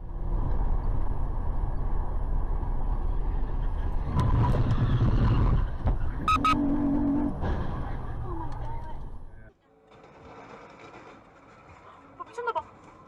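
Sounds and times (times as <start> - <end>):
car engine and road rumble: 0.0 - 11.7.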